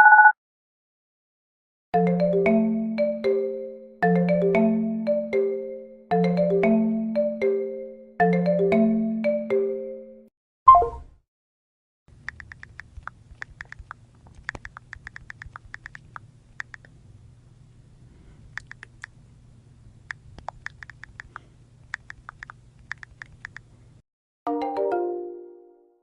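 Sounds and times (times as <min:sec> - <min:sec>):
low steady hum: 0:12.1 - 0:24.0.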